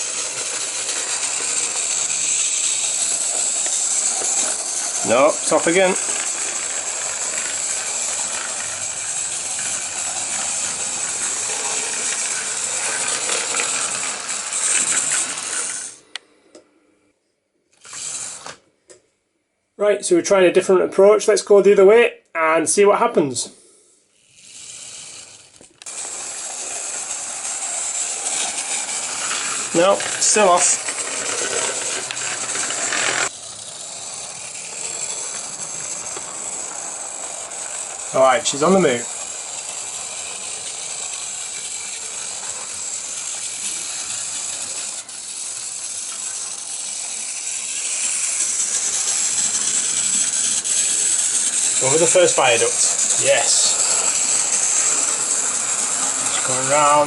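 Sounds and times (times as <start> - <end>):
model train rattling on rails: 0.0 - 16.0, 24.2 - 57.0
hiss: 25.9 - 57.0.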